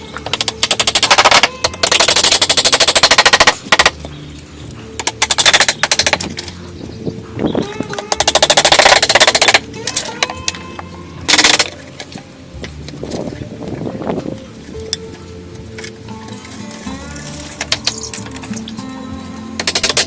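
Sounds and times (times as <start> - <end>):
rapid rattling strikes: 0.3 - 4.0, 5.0 - 6.6, 8.0 - 10.4, 11.3 - 11.8, 19.6 - 20.0.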